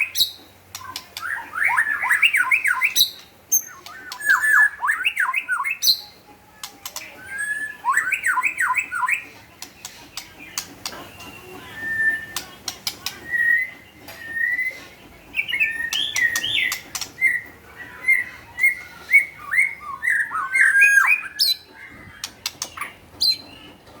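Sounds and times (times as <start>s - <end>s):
bird singing whistled phrases: 0.0s - 6.0s, 7.2s - 9.2s, 11.2s - 12.5s, 13.2s - 14.8s, 15.4s - 21.6s.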